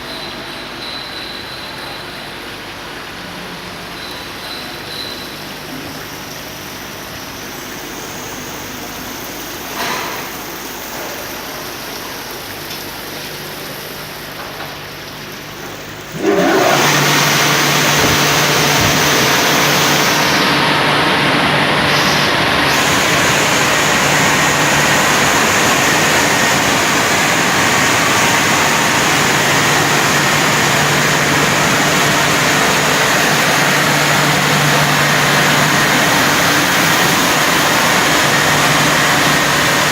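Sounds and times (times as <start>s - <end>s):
vehicle wash machinery humming: 0.0s - 39.9s
loud rushing noise: 16.1s - 39.9s.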